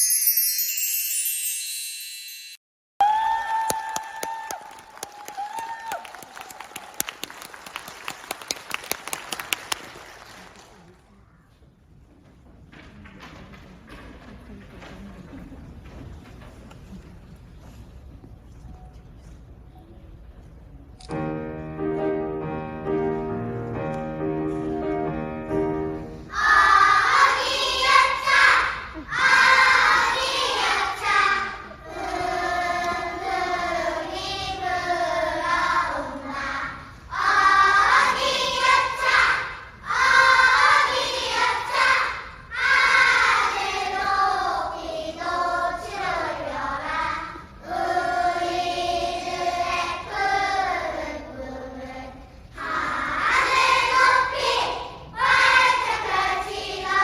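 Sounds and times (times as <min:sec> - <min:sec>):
piano accompaniment: 0:21.0 - 0:28.2
choir singing: 0:26.3 - 0:57.0.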